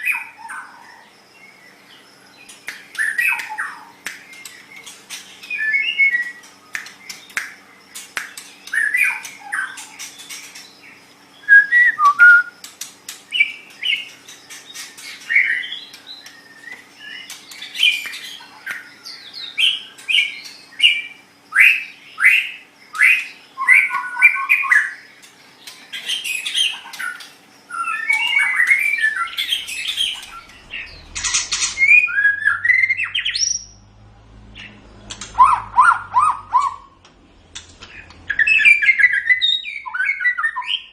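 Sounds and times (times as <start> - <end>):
songbird singing whistled phrases: 5.4 - 7.5, 11.4 - 12.6, 15.3 - 25.1, 27.7 - 33.8, 38.3 - 40.9.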